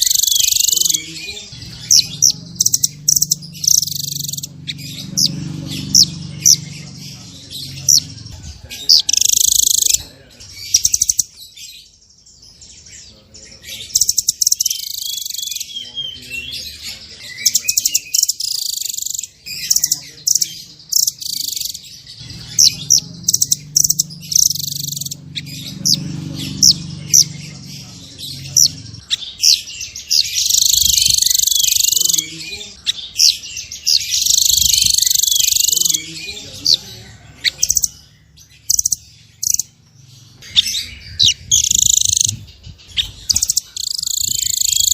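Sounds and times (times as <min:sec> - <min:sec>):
nuthatch chip calls: 0:00.0 - 0:05.3, 0:08.8 - 0:10.0, 0:13.8 - 0:16.2, 0:17.3 - 0:27.3, 0:28.4 - 0:38.0, 0:38.6 - 0:39.7, 0:40.4 - 0:44.9.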